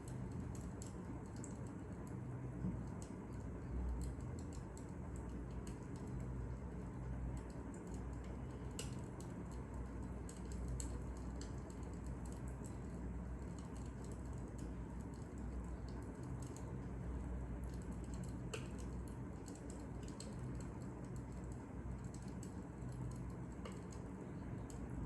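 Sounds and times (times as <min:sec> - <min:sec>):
fire crackling: 0:02.7 - 0:25.0.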